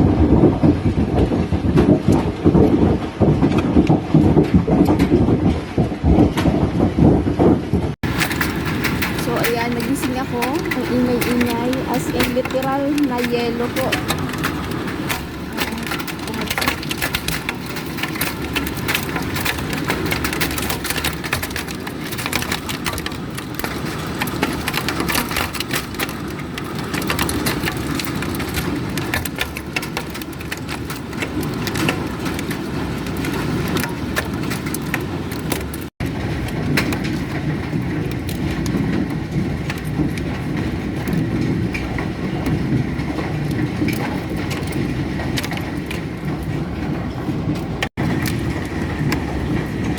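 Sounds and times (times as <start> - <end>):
low rumble: 0.0 - 24.8
hailstones clattering: 0.0 - 49.9.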